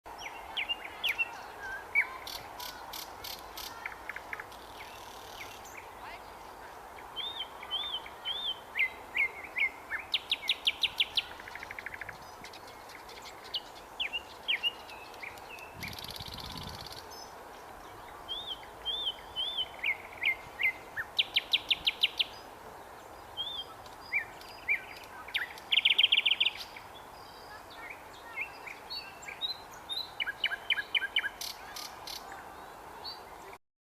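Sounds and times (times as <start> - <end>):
nightingale singing: 7.0 - 33.6.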